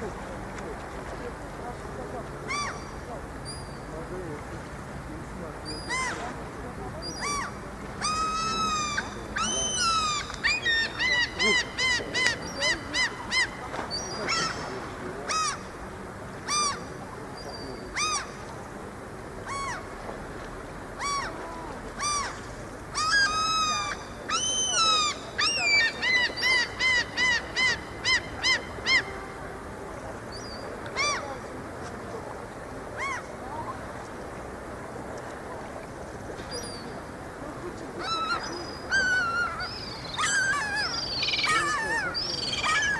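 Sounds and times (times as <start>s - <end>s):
steady background hiss: 0.0s - 42.9s
gulls crying: 5.7s - 18.4s, 20.8s - 31.7s, 36.5s - 42.9s.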